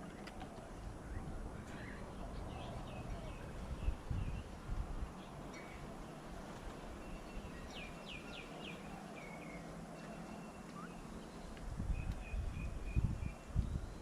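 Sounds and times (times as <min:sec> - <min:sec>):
outdoor background noise: 0:00.0 - 0:14.0
birds whistling calls: 0:00.1 - 0:04.6, 0:05.2 - 0:14.0.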